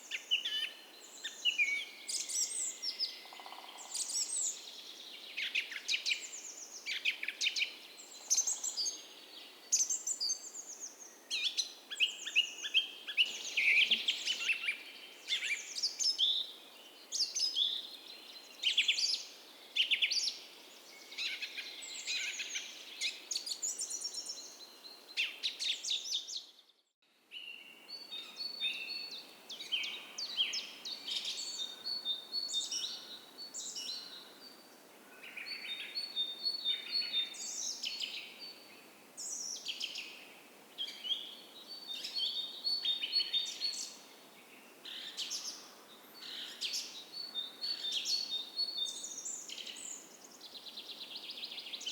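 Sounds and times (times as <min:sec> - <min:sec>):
songbirds chirping and trilling: 0:00.0 - 0:26.8.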